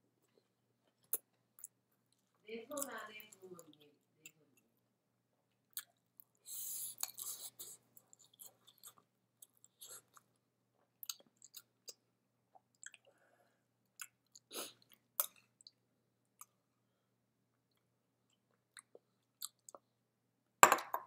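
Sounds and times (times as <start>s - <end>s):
chewing and mouth sounds: 5.7s - 13.2s, 13.9s - 16.6s, 17.6s - 19.9s.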